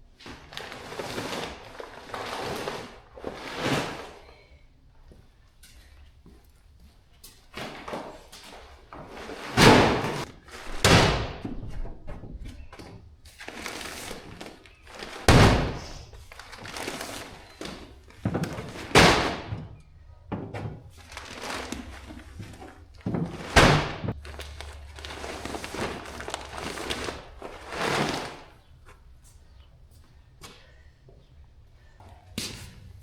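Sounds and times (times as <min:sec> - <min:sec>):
bags rustling: 0:00.2 - 0:04.3, 0:07.6 - 0:11.4, 0:12.4 - 0:29.6
heavy sacks thudding down: 0:09.1 - 0:11.7, 0:13.5 - 0:19.8, 0:20.9 - 0:28.6.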